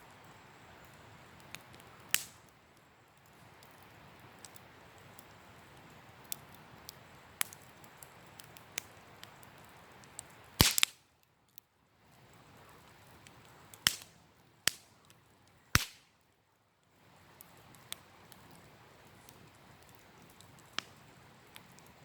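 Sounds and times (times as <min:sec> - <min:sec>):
campfire crackling: 0:00.0 - 0:22.0
loud sharp pops: 0:10.6 - 0:11.0, 0:13.8 - 0:14.1, 0:15.8 - 0:16.1.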